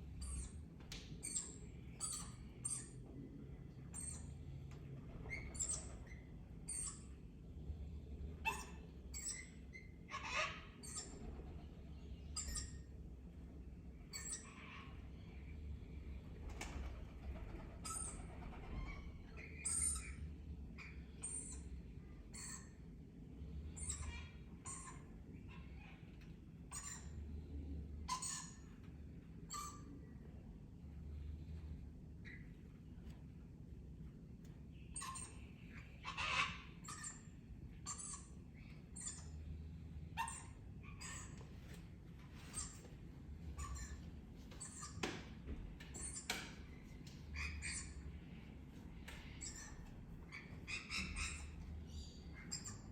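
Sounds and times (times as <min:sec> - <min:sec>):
parrots chirping and squawking: 0:01.2 - 0:03.0, 0:08.4 - 0:12.9, 0:14.0 - 0:15.4, 0:16.6 - 0:20.2, 0:20.8 - 0:22.8, 0:23.8 - 0:27.2, 0:28.1 - 0:28.7, 0:34.8 - 0:41.8, 0:42.4 - 0:52.9
parrots harsh calls: 0:10.1 - 0:11.3, 0:35.0 - 0:37.2, 0:47.4 - 0:48.1, 0:49.3 - 0:52.9.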